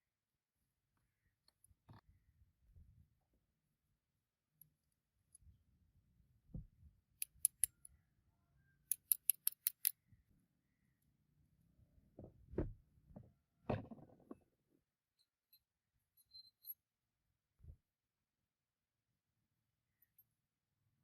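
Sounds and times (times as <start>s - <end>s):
sharp crisp clicks: 7.2s - 7.8s, 8.9s - 10.0s.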